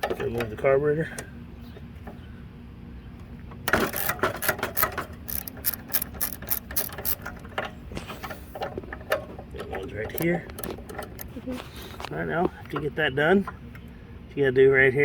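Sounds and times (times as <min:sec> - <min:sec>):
socket ratchet clicking: 0:03.9 - 0:07.3.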